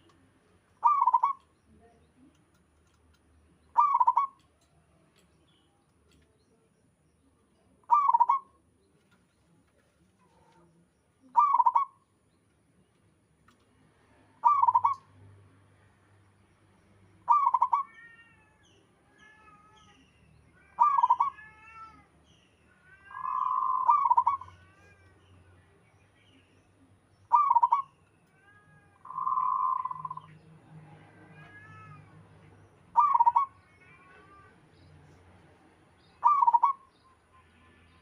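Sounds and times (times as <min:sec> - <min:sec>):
high chirping bird calls: 0:00.0 - 0:04.6, 0:07.8 - 0:08.6, 0:11.2 - 0:12.4, 0:14.4 - 0:15.2, 0:17.2 - 0:28.4, 0:29.0 - 0:30.5, 0:31.4 - 0:35.0, 0:36.0 - 0:38.0
dove cooing: 0:00.8 - 0:01.4, 0:03.8 - 0:04.4, 0:11.4 - 0:11.9, 0:14.4 - 0:15.0, 0:17.3 - 0:17.9, 0:20.8 - 0:21.3, 0:23.1 - 0:24.5, 0:27.3 - 0:27.9, 0:33.0 - 0:33.5, 0:36.2 - 0:36.8.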